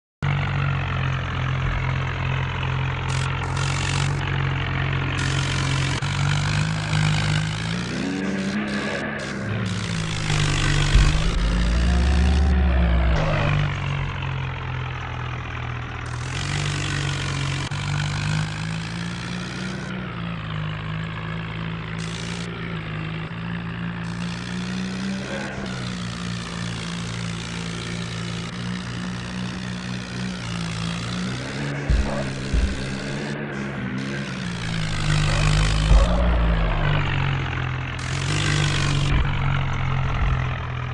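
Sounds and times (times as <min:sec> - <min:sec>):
tractor engine running: 0:00.2 - 0:40.9
loud low rumble: 0:08.7 - 0:15.2, 0:34.4 - 0:40.9.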